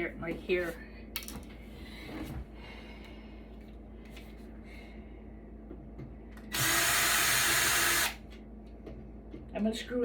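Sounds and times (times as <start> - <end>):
power drill running: 6.5 - 8.2.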